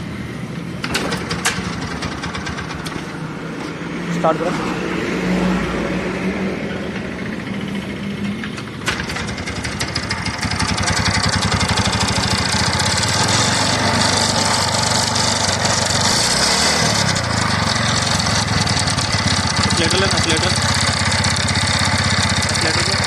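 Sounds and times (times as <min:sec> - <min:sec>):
scooter engine running: 0:00.9 - 0:03.3, 0:06.6 - 0:23.0.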